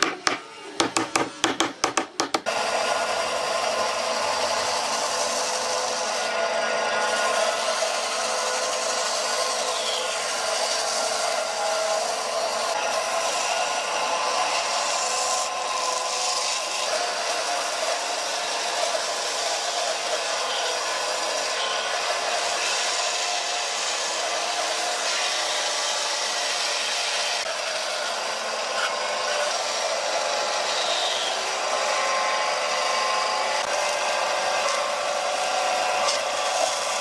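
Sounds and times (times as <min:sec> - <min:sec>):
power tool working wood: 0:00.0 - 0:37.0.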